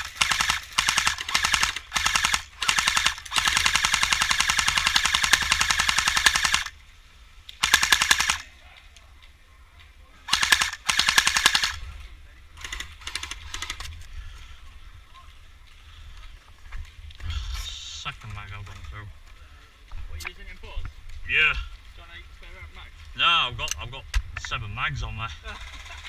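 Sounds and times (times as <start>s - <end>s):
airsoft guns firing bursts: 0.0s - 6.7s, 7.6s - 8.5s, 10.3s - 11.8s, 25.5s - 26.0s.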